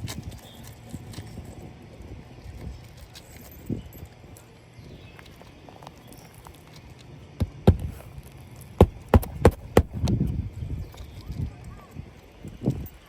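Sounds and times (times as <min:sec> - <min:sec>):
rustling of shingles: 0:05.8 - 0:10.2
hammer knocking on shingles: 0:07.4 - 0:08.0, 0:08.8 - 0:10.1.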